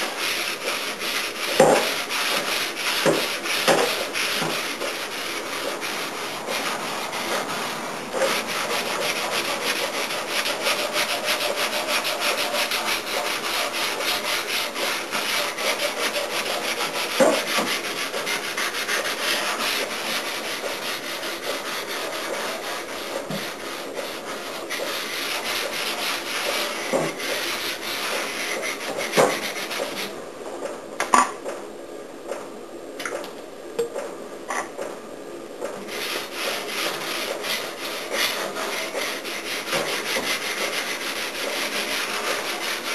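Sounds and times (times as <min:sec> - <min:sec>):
sandpaper rubbing on metal panel: 0:00.0 - 0:30.1, 0:35.9 - 0:42.9.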